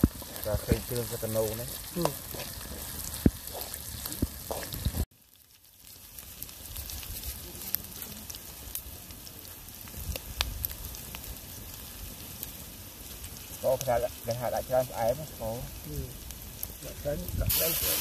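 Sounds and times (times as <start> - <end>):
aromatics sizzling in hot oil: 0.0 - 18.0
sharp crackles: 0.0 - 18.0.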